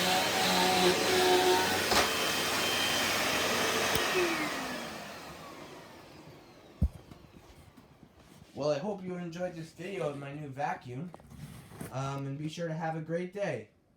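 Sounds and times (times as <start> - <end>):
vacuum cleaner running: 0.0 - 8.1.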